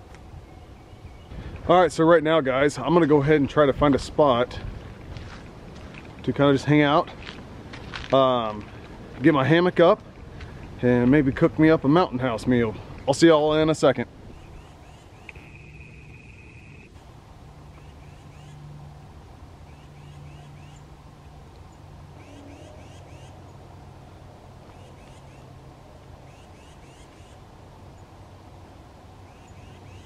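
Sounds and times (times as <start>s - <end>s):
songbird chirping: 0.0s - 1.4s, 14.3s - 17.0s, 17.6s - 18.7s, 19.6s - 20.9s, 21.5s - 23.8s, 24.6s - 25.5s, 26.2s - 28.2s, 29.2s - 30.0s.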